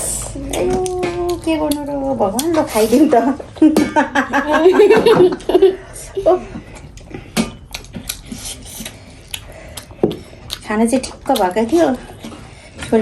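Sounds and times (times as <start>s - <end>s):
chewing mouth smacks: 7.7s - 12.5s.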